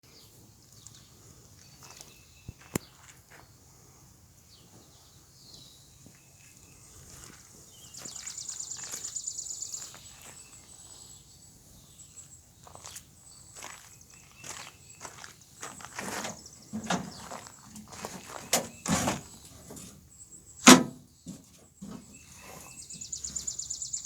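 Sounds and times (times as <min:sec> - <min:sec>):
footsteps outdoors: 0:00.2 - 0:03.8, 0:04.5 - 0:20.1.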